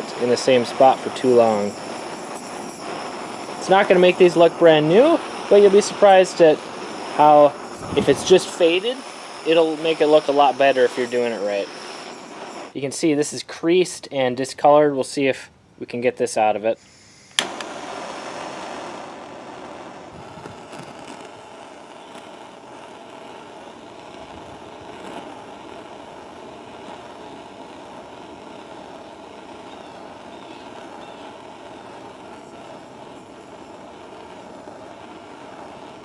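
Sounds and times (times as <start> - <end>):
blowtorch flame hissing: 0.0 - 12.8, 16.8 - 36.0.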